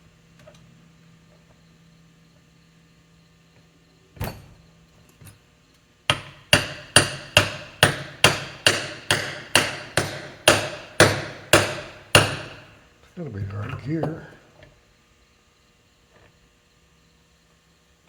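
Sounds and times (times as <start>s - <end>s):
hammer striking metal: 6.1s - 12.8s.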